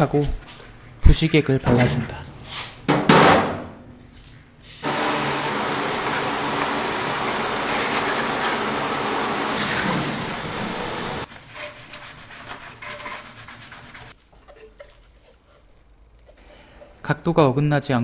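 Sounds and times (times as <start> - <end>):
water running from a tap: 4.7 - 11.3.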